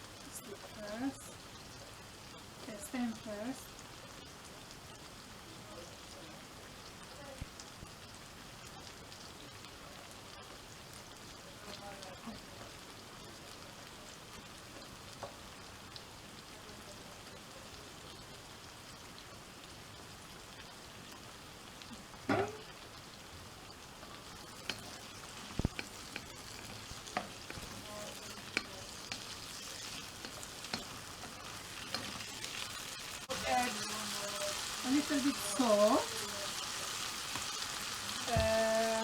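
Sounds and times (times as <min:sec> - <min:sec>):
vegetables sizzling in a frying pan: 0:00.0 - 0:39.0
spatula scraping a pan: 0:24.5 - 0:35.7.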